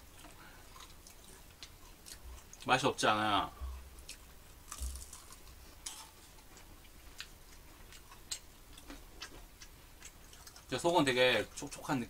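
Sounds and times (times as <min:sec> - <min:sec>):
crunchy food being chewed: 0:00.0 - 0:02.9, 0:03.6 - 0:11.9.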